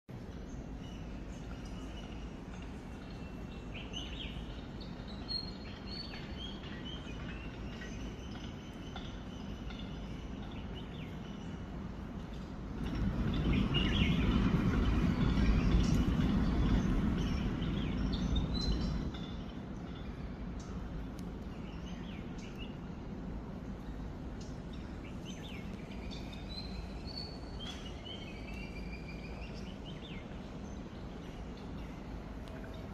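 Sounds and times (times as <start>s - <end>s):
steady background hiss: 0.1s - 32.9s
small birds chirping and whistling: 0.5s - 11.6s, 13.3s - 20.8s, 24.4s - 32.0s.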